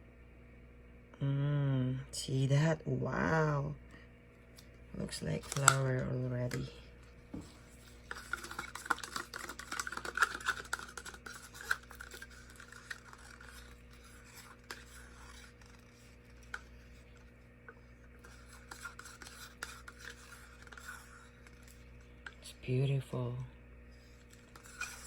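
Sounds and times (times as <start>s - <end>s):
paint scratching in plastic cup: 7.3s - 22.4s, 23.9s - 25.0s.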